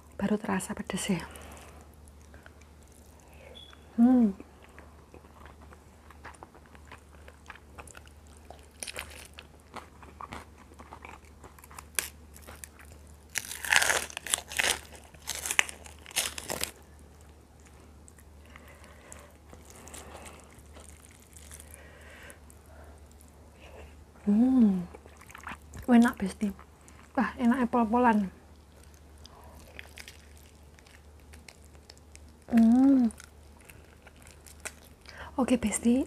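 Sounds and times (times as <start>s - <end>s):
loud chewing crunches: 4.6s - 16.9s, 17.6s - 22.0s, 28.6s - 35.2s.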